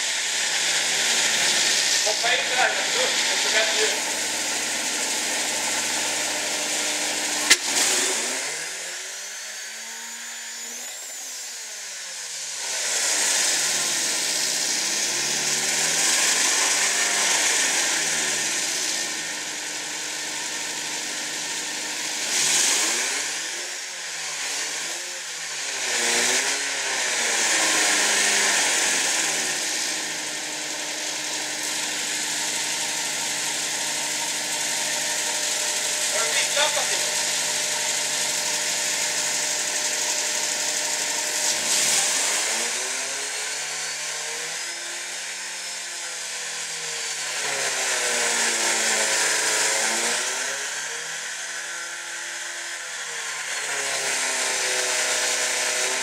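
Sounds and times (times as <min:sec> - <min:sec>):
sharp click: 0:07.4 - 0:07.8.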